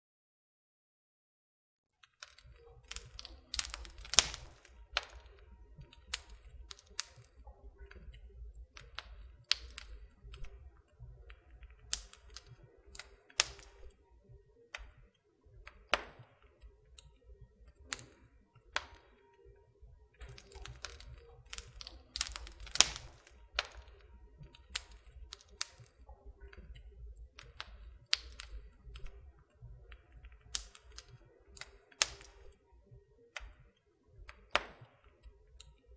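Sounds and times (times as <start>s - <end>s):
wood fire crackling and popping: 2.0s - 35.9s
low rumble of flame: 2.4s - 34.6s.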